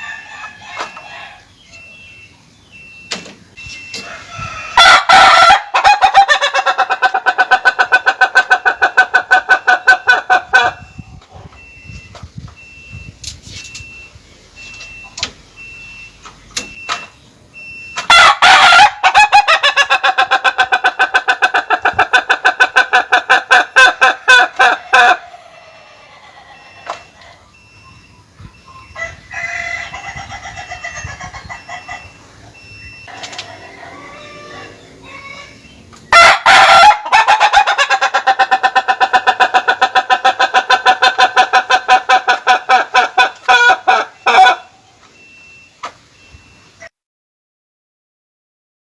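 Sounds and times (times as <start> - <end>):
rooster crowing: 0.0 - 1.5, 4.0 - 10.8, 18.1 - 21.7, 22.7 - 27.4, 28.9 - 32.2, 33.1 - 44.8
soft rooster calls: 0.0 - 2.0, 3.9 - 7.2, 24.3 - 27.5, 28.9 - 32.2, 33.1 - 38.8, 42.8 - 44.9.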